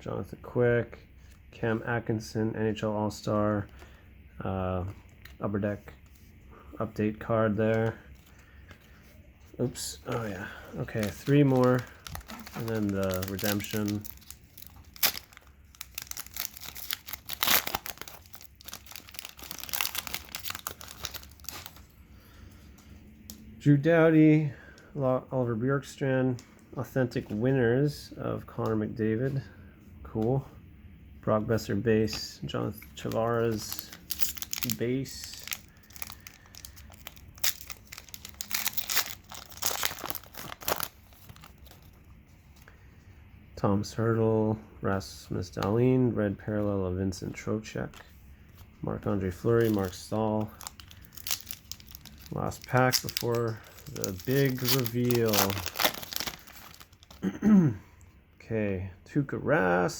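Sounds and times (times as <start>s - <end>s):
wrapper tearing and crinkling: 10.2s - 21.9s, 33.0s - 42.0s, 49.4s - 57.3s.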